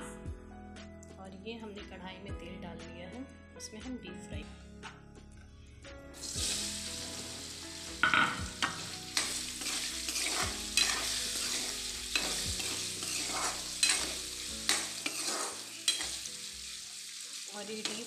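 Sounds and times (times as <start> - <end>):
food sizzling in hot oil: 6.2 - 18.0
metal spoon scraping pan: 8.0 - 16.3.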